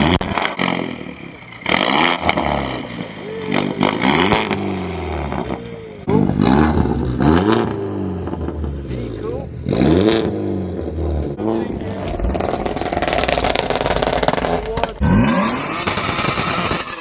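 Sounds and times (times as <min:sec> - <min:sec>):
car engine revving: 0:00.0 - 0:17.0
exhaust crackling bursts: 0:11.6 - 0:17.0.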